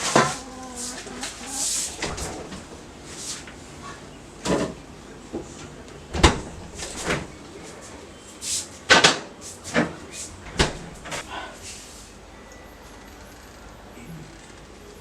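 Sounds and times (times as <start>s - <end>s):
knocks and clunks: 8.9s - 11.2s.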